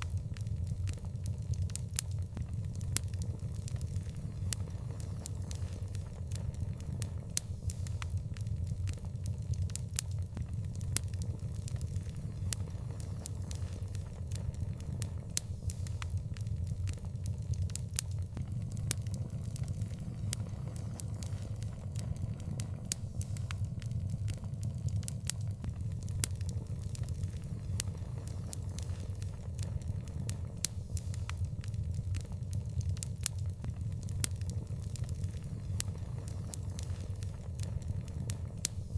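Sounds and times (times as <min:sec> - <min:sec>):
fire crackles and pops: 0:00.0 - 0:38.9
wood fire rumbling: 0:18.4 - 0:25.8.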